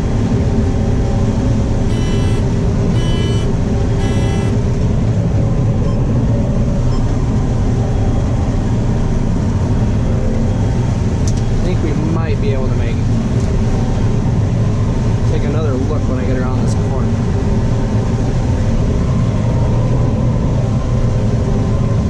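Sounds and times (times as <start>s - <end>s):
combine engine drone: 0.0s - 22.0s
electronic alarm beeps: 1.9s - 4.6s.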